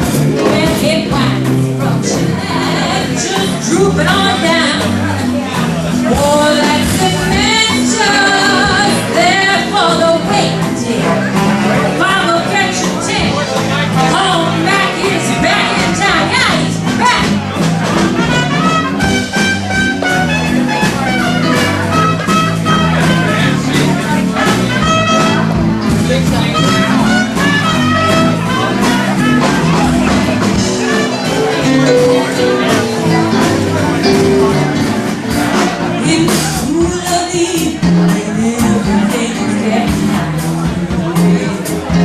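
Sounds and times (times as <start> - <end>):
live band playing swing blues: 0.0 - 42.0.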